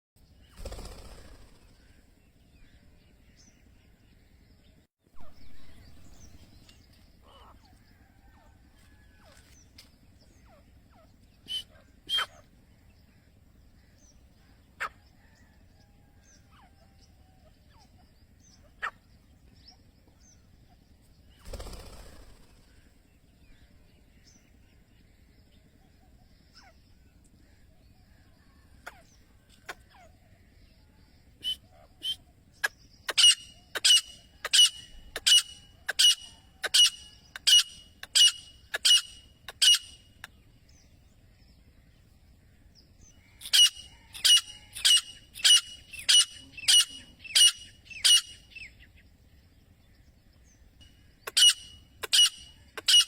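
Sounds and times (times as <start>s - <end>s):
steady low hum: 0.2s - 53.0s
francolin calls: 10.3s - 12.5s, 31.3s - 40.4s, 42.9s - 48.8s, 50.9s - 53.0s.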